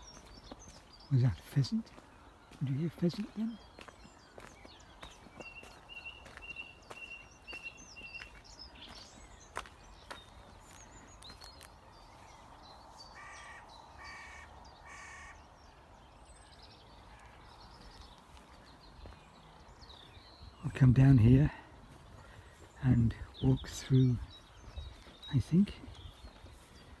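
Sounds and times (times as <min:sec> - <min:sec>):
birds singing and chirping: 0:00.0 - 0:27.0
harsh caws: 0:13.1 - 0:15.4.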